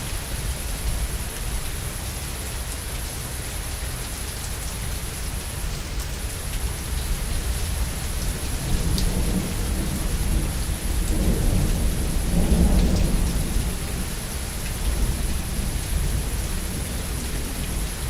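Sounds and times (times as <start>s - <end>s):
heavy rain: 0.0s - 18.0s
rolling thunder rumble: 5.3s - 18.0s.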